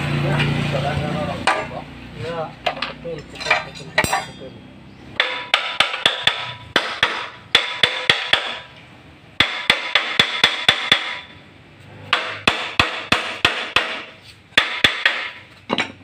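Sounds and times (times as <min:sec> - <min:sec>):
hammer strikes on metal: 0:01.4 - 0:01.8, 0:02.6 - 0:04.4, 0:05.2 - 0:08.8, 0:09.4 - 0:11.4, 0:12.0 - 0:16.0.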